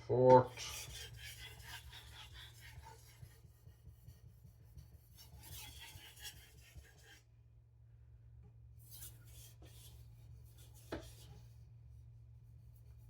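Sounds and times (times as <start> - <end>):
knife scraping on whetstone: 0.5 - 3.3, 5.2 - 7.2.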